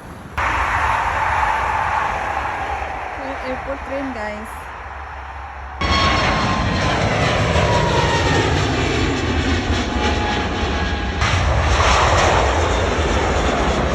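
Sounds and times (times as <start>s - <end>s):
jet airliner engines whining: 0.0s - 13.9s.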